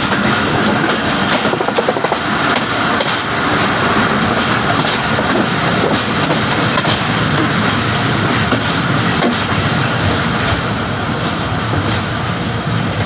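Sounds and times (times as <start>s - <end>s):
wheels clicking over rail joints: 0.0s - 3.4s
train rumbling on track: 0.0s - 13.0s.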